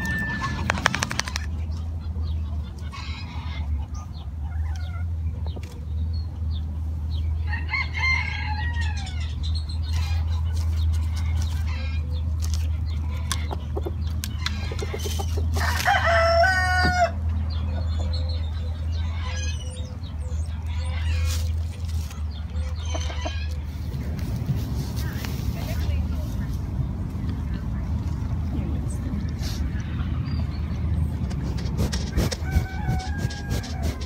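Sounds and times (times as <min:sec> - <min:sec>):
chickens calling: 0:00.0 - 0:34.0
rooster crowing: 0:07.5 - 0:09.2, 0:15.6 - 0:17.2, 0:32.2 - 0:34.0.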